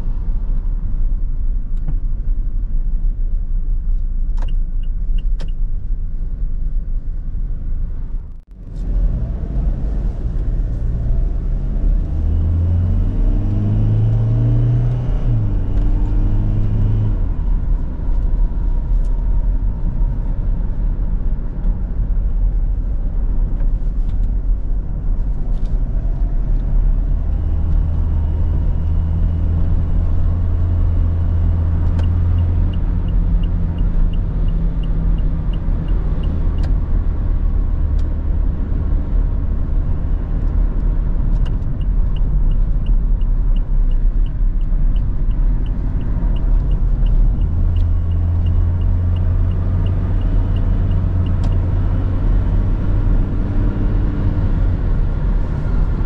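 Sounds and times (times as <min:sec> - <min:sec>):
diesel car engine: 0:00.0 - 0:56.0
road rumble: 0:00.0 - 0:56.0
faint regular ticking: 0:41.4 - 0:51.6.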